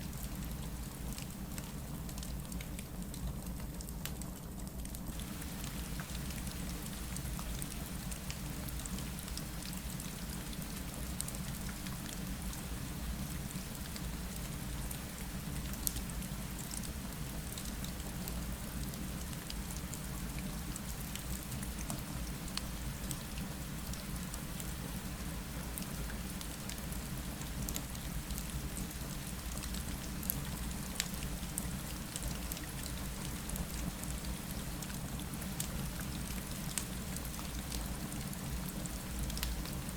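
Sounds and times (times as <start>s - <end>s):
fireplace crackles: 4.8s - 9.8s
rain against a window: 5.1s - 39.9s.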